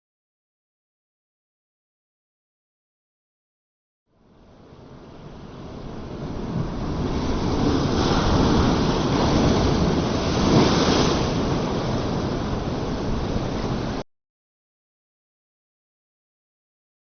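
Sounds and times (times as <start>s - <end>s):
sea waves surging: 4.2s - 14.0s.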